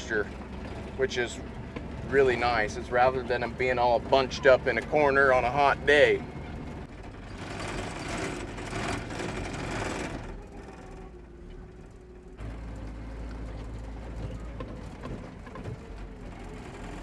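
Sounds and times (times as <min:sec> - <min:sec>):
truck engine rumble: 0:00.0 - 0:17.0
light clicks and rattles: 0:07.7 - 0:17.0.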